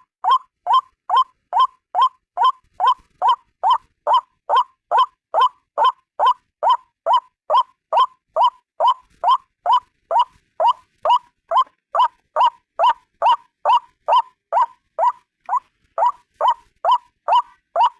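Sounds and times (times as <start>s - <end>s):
waterhen calling: 0.0s - 17.9s.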